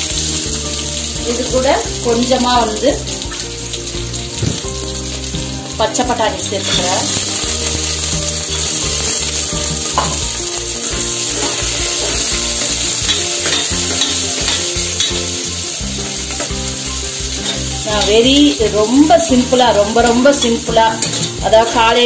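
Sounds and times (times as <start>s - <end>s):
food sizzling in ghee: 0.0s - 22.0s
ladle stirring: 6.4s - 22.0s.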